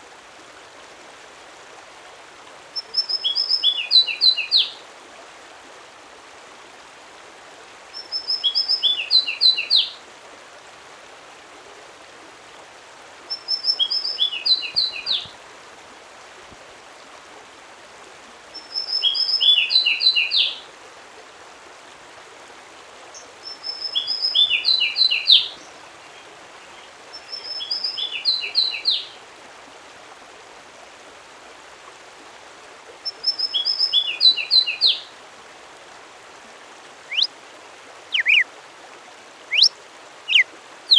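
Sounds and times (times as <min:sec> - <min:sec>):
background hiss: 0:00.0 - 0:40.9
songbird singing: 0:02.8 - 0:04.8, 0:08.0 - 0:10.0, 0:13.3 - 0:15.3, 0:18.6 - 0:20.6, 0:23.1 - 0:29.2, 0:33.0 - 0:35.1, 0:37.1 - 0:37.4, 0:38.1 - 0:38.5, 0:39.5 - 0:40.9.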